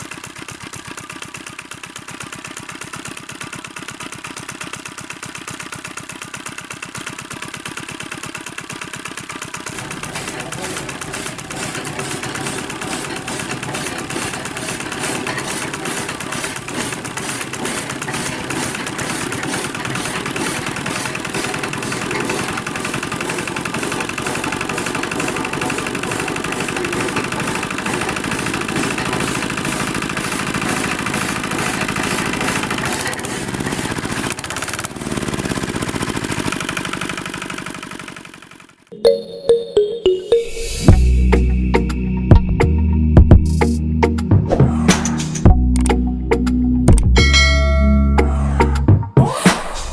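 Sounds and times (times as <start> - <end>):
small tractor engine rattling: 0.0 - 38.9.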